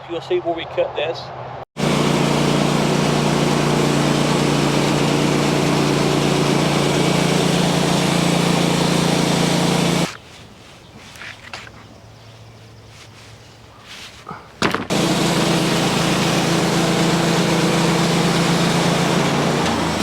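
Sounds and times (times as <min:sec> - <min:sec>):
engine-driven machine running: 0:01.8 - 0:10.2, 0:14.9 - 0:20.0.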